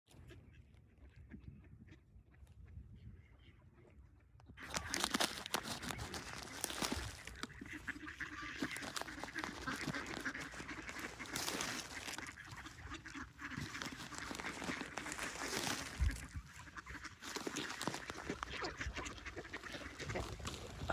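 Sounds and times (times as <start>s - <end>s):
ducks quacking: 4.6s - 20.9s.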